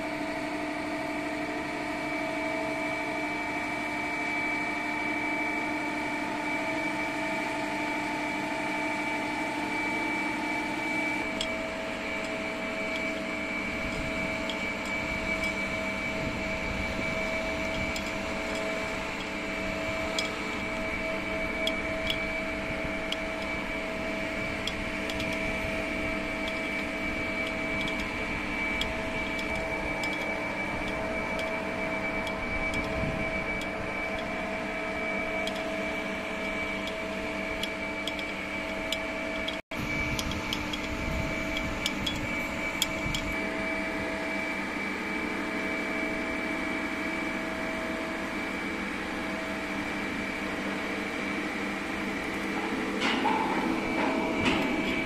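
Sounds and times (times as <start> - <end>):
machine hum with high whine: 0.0 - 55.0.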